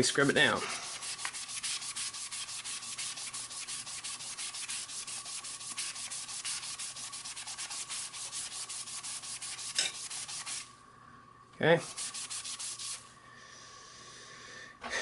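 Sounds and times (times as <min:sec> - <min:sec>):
sponge scrubbing foam grip: 0:00.3 - 0:10.7, 0:11.8 - 0:13.0.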